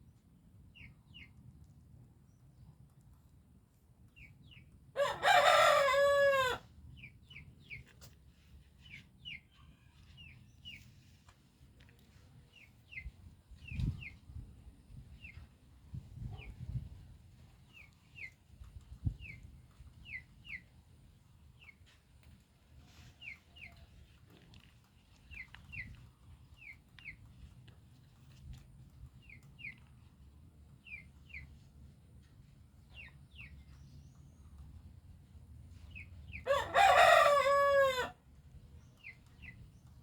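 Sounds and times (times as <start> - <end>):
rooster crowing: 5.0 - 6.6, 36.5 - 38.2.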